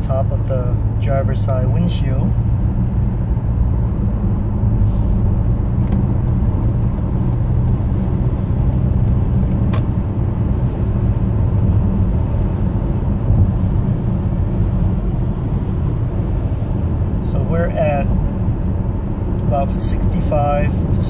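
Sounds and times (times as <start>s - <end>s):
tire rumble on road: 0.0s - 21.0s.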